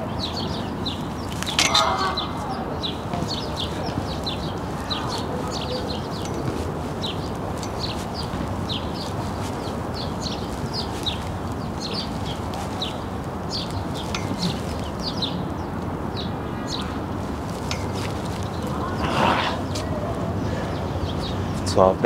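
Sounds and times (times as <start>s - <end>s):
steady background rush: 0.0s - 21.7s
small birds chirping: 0.0s - 22.0s.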